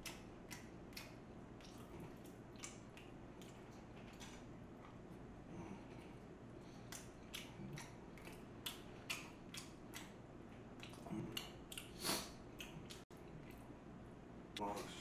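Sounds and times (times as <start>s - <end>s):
wet mouth chewing clicks and smacks: 0.0s - 5.0s, 6.6s - 10.2s, 10.8s - 12.0s.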